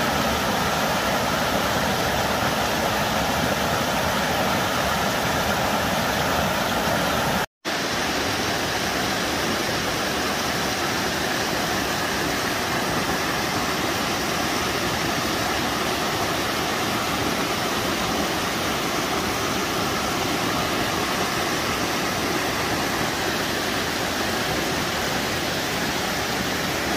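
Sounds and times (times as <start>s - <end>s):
waterfall roaring: 0.0s - 26.9s.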